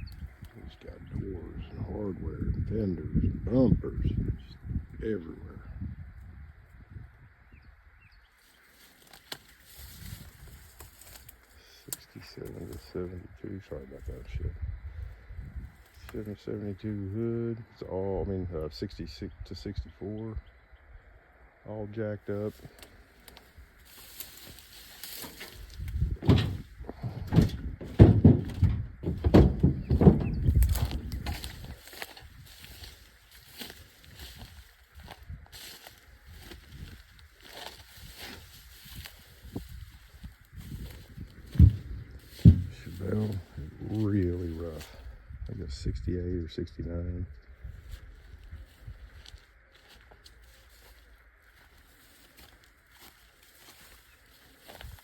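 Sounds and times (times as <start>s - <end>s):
footsteps: 8.6s - 11.6s, 22.5s - 45.0s, 47.8s - 55.0s.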